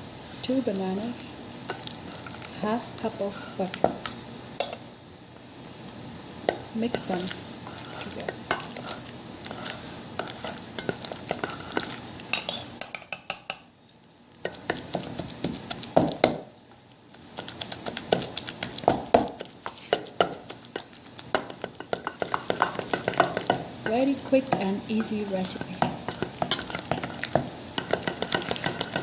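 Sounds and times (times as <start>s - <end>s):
utensil mashing in a bowl: 5.4s - 29.0s
clinks and scrapes against bowl: 6.5s - 13.7s, 26.1s - 29.0s.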